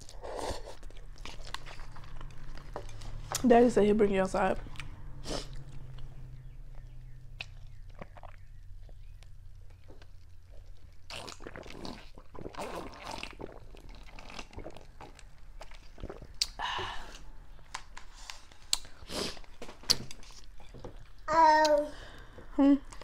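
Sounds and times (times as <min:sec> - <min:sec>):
person chewing noodles: 0:00.0 - 0:03.4, 0:06.7 - 0:21.2
mouth clicks and smacks: 0:06.8 - 0:16.6.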